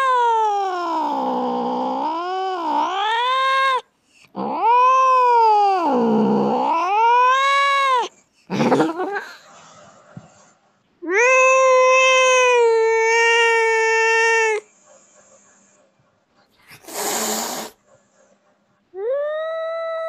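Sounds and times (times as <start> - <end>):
cat yowling meows: 0.0 - 3.8, 4.4 - 8.1, 11.0 - 14.7, 19.0 - 20.0.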